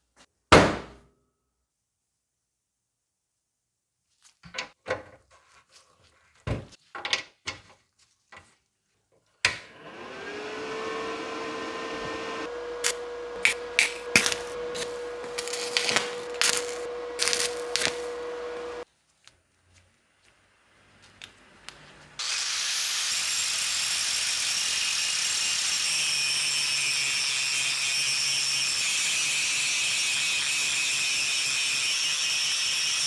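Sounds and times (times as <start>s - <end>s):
power tool motor whining: 9.7s - 18.8s
sharp rasps of power tool: 12.8s - 18.8s, 22.2s - 33.0s.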